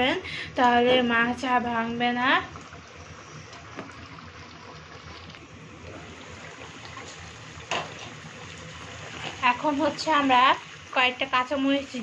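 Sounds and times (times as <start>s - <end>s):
curry simmering and bubbling: 2.4s - 12.0s.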